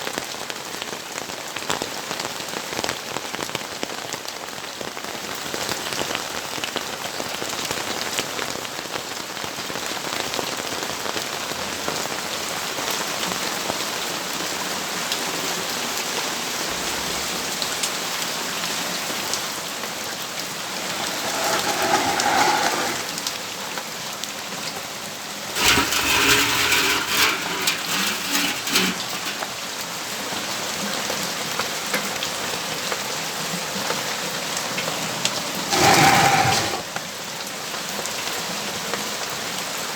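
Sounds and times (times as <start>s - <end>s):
steady rain pattering: 0.0s - 28.4s, 29.1s - 39.9s.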